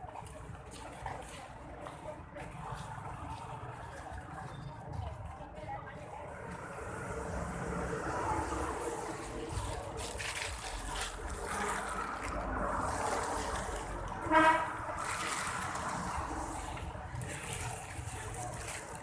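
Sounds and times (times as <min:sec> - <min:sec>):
vehicle horn honk: 0:14.2 - 0:14.8.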